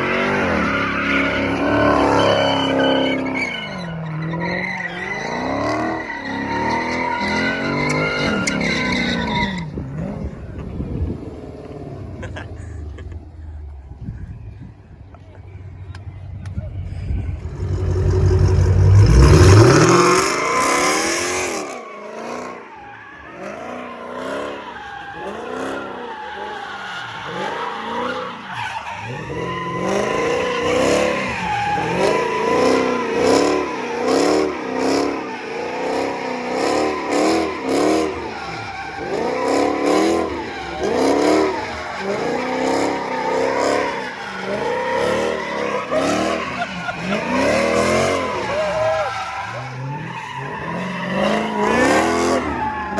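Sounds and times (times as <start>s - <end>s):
tires squealing: 0.0s - 52.9s
car engine revving: 15.2s - 22.8s, 29.0s - 52.9s.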